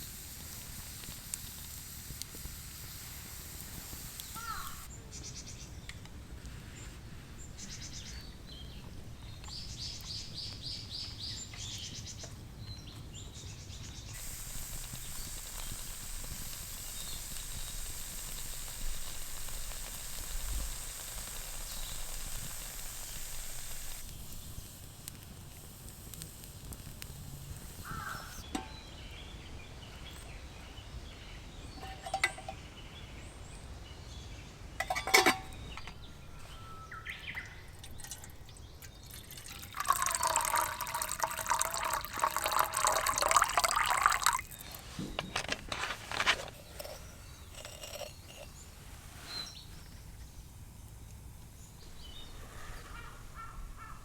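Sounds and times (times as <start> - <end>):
steady hiss: 0.0 - 12.2, 13.1 - 28.8, 34.4 - 54.0
bird pulsed call: 35.8 - 37.9, 51.8 - 54.0.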